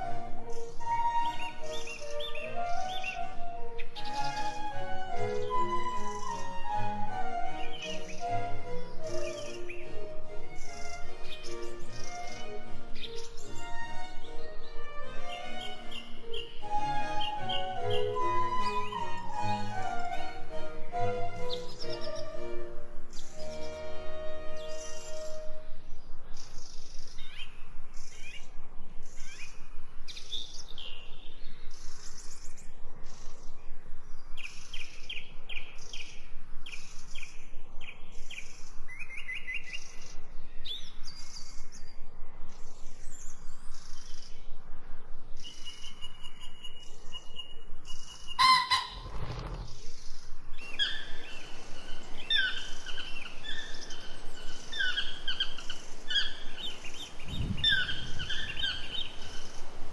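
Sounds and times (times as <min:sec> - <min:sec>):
bird two-toned call: 0:00.0 - 0:14.4, 0:15.1 - 0:25.8, 0:45.8 - 0:49.6, 0:50.6 - 0:59.8
birds chirping and trilling: 0:00.0 - 0:59.9.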